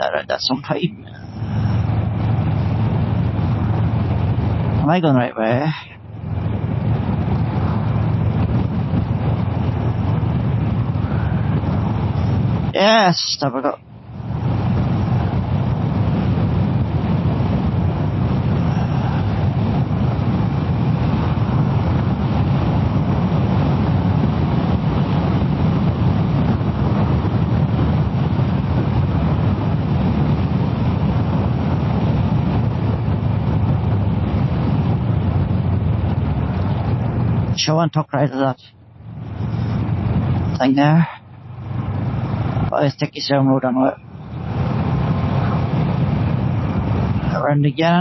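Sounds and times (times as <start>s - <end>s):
road noise: 0.0s - 48.0s
wind rush: 0.0s - 48.0s
motorcycle engine running: 1.1s - 4.9s, 6.0s - 12.8s, 13.8s - 37.6s.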